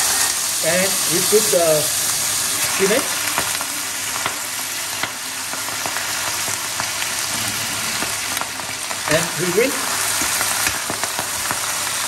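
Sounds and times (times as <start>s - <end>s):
leaves sizzling in butter: 0.0s - 12.0s.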